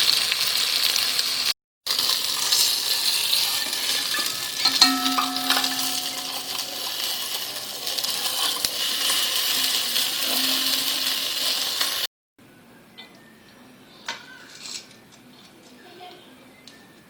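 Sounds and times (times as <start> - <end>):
chicken sizzling in a pan: 0.0 - 12.1
sharp clink: 4.6 - 7.2, 10.2 - 11.6.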